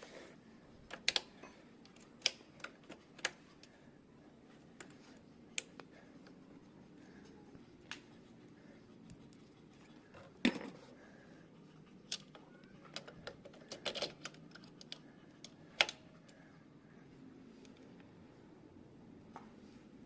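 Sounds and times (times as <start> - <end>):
tools and engine parts clicking: 12.0 - 16.0.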